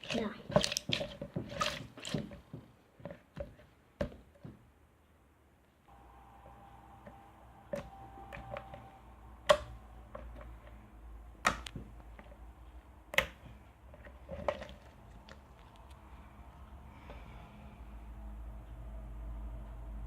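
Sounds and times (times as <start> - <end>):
slime popping air bubbles: 0.0 - 2.4
slime crackling: 0.0 - 2.5.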